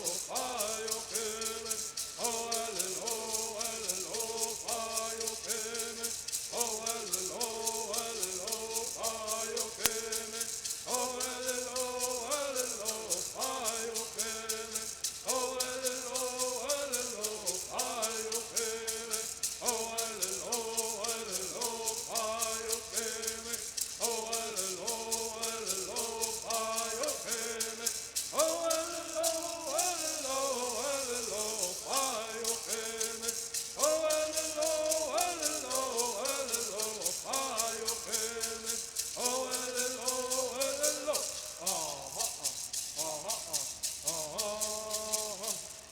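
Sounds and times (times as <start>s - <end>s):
gourd rattles shaking: 0.0s - 45.9s
voices singing: 0.0s - 45.9s.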